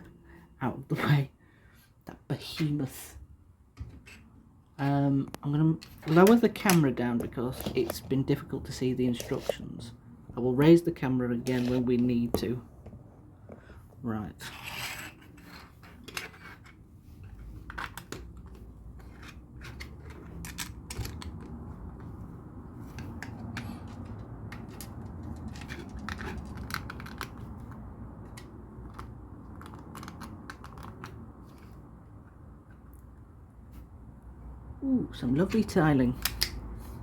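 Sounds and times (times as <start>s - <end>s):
plastic bricks clicking: 17.6s - 21.6s, 23.0s - 27.5s, 28.2s - 31.7s.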